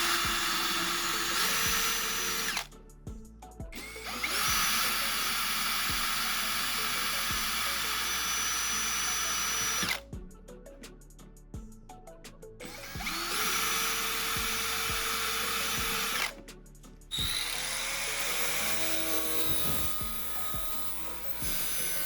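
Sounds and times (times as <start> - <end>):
electric drill running: 0.0 - 2.7, 3.8 - 10.0, 12.6 - 16.3, 17.1 - 22.0
background music: 0.0 - 22.0.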